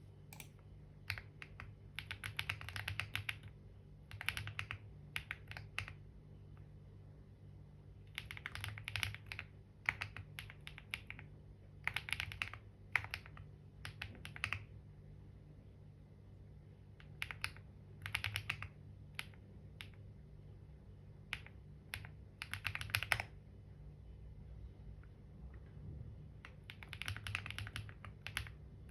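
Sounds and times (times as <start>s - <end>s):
low steady hum: 0.0s - 28.9s
keyboard typing: 0.3s - 6.0s, 8.1s - 14.7s, 17.0s - 20.0s, 21.3s - 23.4s, 26.4s - 28.9s.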